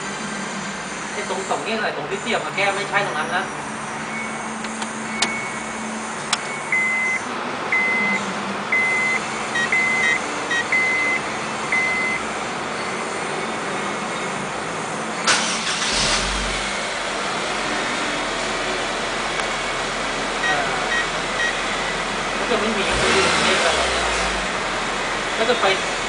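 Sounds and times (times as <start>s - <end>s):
car engine starting and idling: 4.1s - 12.6s, 14.6s - 26.0s
car warning chime beeping: 5.1s - 5.7s, 6.3s - 12.2s, 20.4s - 22.0s.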